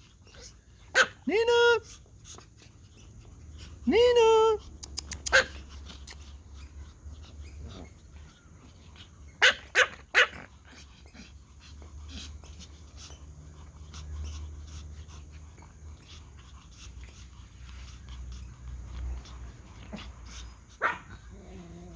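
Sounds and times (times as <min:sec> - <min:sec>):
dog yips: 0:00.9 - 0:01.2, 0:05.0 - 0:05.6, 0:09.4 - 0:10.4, 0:20.8 - 0:21.2
dogs barking: 0:00.9 - 0:01.2, 0:05.2 - 0:05.6, 0:09.4 - 0:10.5, 0:20.8 - 0:21.3.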